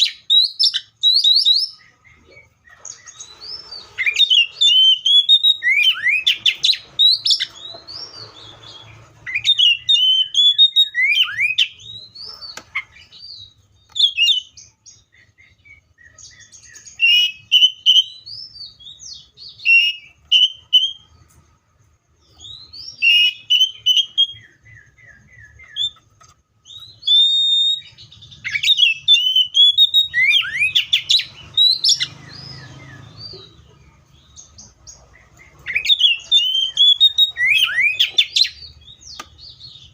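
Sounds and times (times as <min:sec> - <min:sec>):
magpie-robin whistled song: 0:00.0 - 0:21.2, 0:22.2 - 0:39.9.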